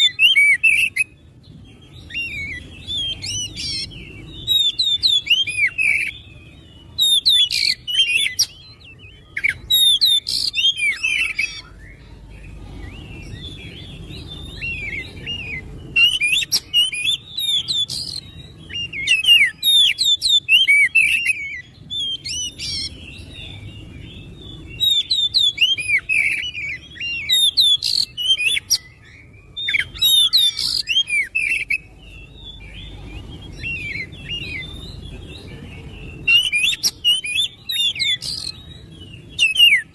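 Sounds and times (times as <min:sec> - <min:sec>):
bird singing whistled phrases: 0:00.0 - 0:39.9
faint low background noise: 0:00.0 - 0:39.9.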